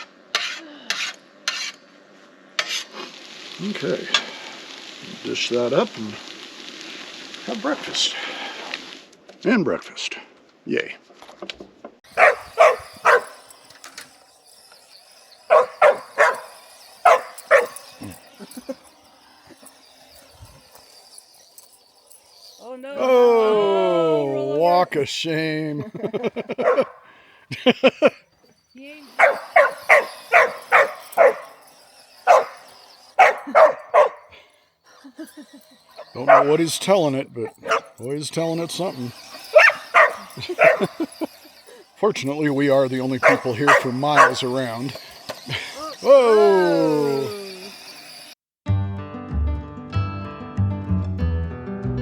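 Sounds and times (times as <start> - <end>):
puppy barking: 12.2 - 13.4, 15.5 - 17.9, 26.6 - 27.1, 29.1 - 31.6, 32.2 - 34.3, 36.0 - 36.6, 37.4 - 38.0, 39.5 - 41.1, 43.2 - 44.6.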